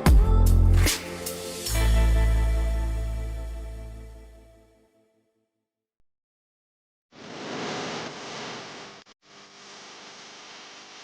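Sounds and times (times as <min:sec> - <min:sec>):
steady rushing noise: 0:07.2 - 0:09.0.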